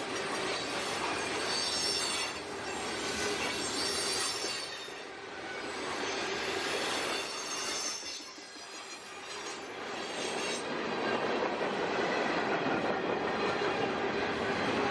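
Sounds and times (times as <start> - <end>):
freight train rolling past: 0.0 - 14.9
high-pitched wheel squeal: 0.9 - 10.6.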